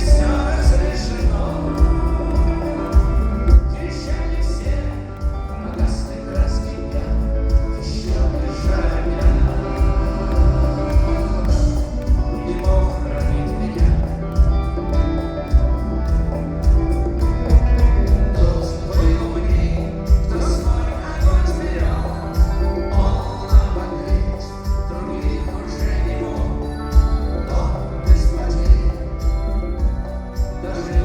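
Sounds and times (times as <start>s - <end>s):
person singing: 0.0s - 31.0s
rock band playing: 0.0s - 31.0s.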